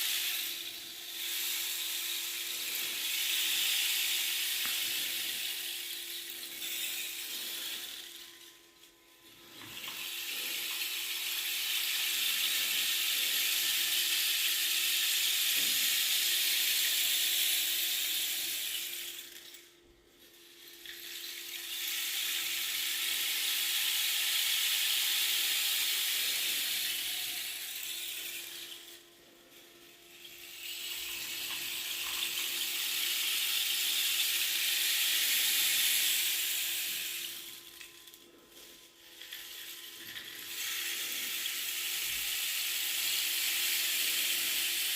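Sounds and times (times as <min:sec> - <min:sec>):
rain stick pebbles pouring: 0:00.0 - 0:19.7, 0:20.3 - 0:44.9
faint steady hum: 0:00.0 - 0:44.9.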